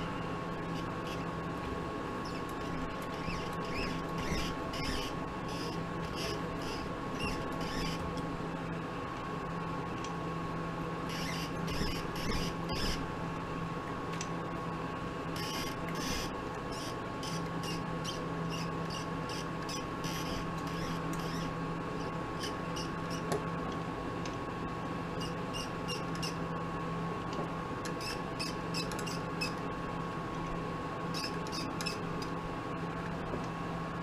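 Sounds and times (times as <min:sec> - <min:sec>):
mini lathe whining: 0:02.2 - 0:08.0, 0:15.4 - 0:23.2
short high squeaks: 0:02.2 - 0:08.1, 0:11.1 - 0:13.0, 0:15.4 - 0:23.2, 0:25.2 - 0:26.4, 0:28.0 - 0:29.6.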